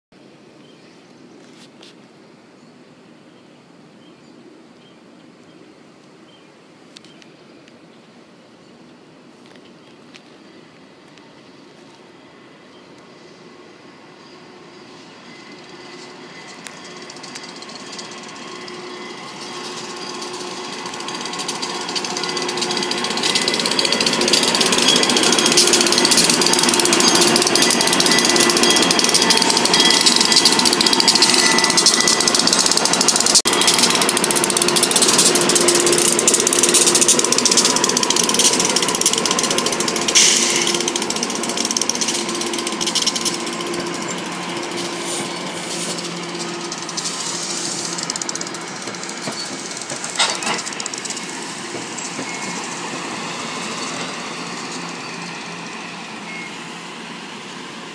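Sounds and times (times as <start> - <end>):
train whining tones: 10.2 - 57.9
train wheels rattling: 13.9 - 56.4.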